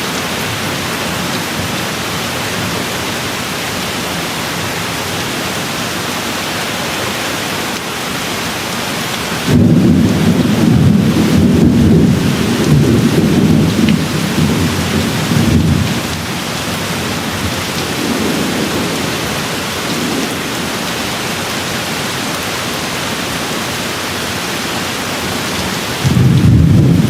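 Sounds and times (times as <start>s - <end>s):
steady rain: 0.0s - 27.0s
rolling thunder: 9.4s - 16.3s, 16.9s - 20.7s, 25.4s - 27.0s.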